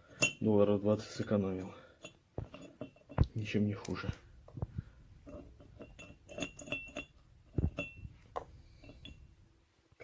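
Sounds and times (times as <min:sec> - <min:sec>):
metal parts clinking: 0:00.1 - 0:00.4, 0:05.2 - 0:09.3.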